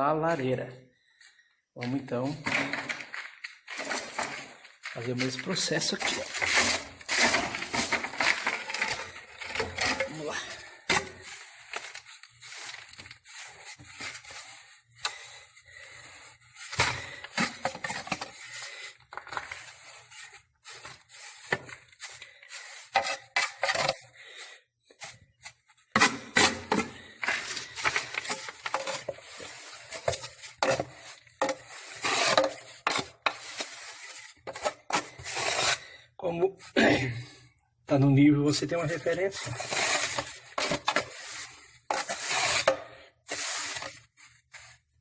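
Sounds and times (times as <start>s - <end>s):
salt being scraped: 9.8s - 15.4s, 19.5s - 23.6s, 27.4s - 34.4s, 38.8s - 42.7s, 43.3s - 44.8s.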